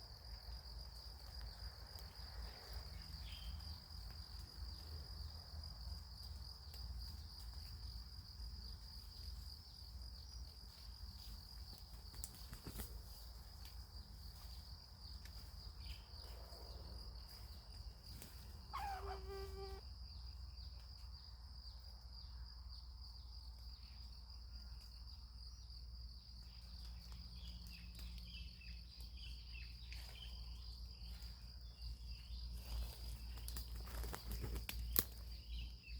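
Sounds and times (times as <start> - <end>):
insect chorus droning: 0.0 - 35.9
short animal call: 18.7 - 19.8.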